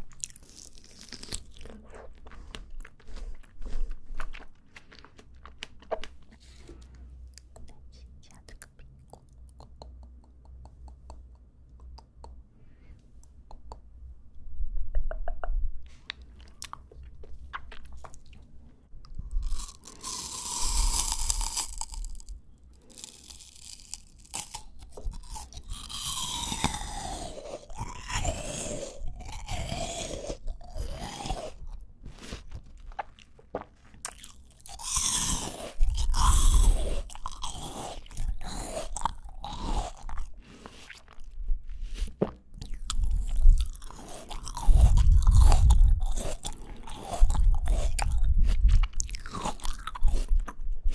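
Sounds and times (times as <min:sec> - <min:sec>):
crisp fruit crunching bites: 0:00.0 - 0:06.3, 0:19.3 - 0:41.3, 0:42.0 - 0:50.6.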